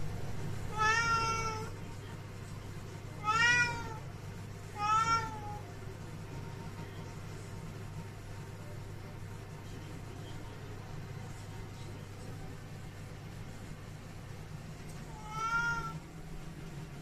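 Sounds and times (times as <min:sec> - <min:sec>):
cat meowing: 0:00.7 - 0:01.7, 0:03.2 - 0:04.0, 0:04.8 - 0:05.6, 0:15.1 - 0:16.0.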